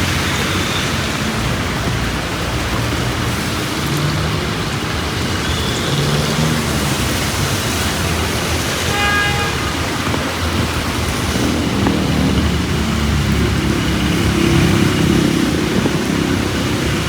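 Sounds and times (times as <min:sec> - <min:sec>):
heavy rain hissing on street: 0:00.0 - 0:17.0
traffic engines: 0:00.0 - 0:17.0
vehicle horn: 0:08.8 - 0:10.1.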